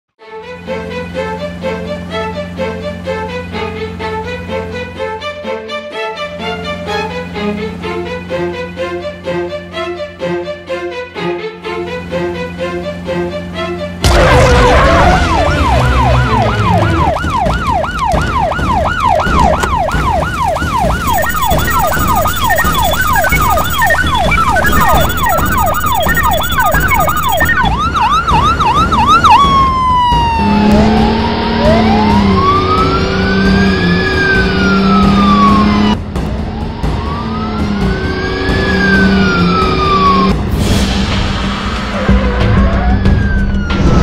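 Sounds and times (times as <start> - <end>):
cartoon police siren: 14.0 - 40.4, 42.1 - 44.0
low siren tone: 14.0 - 40.4.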